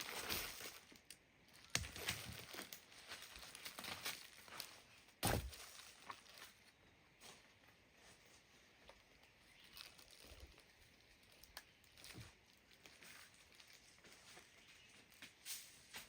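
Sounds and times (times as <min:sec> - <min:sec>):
faint taps and scuffs: 0:13.9 - 0:16.0.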